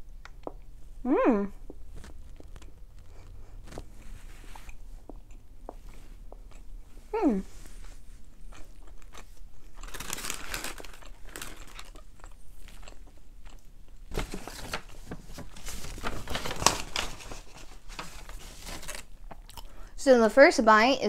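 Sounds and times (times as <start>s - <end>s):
chewing with soft crunches: 1.6s - 14.1s, 19.0s - 19.9s.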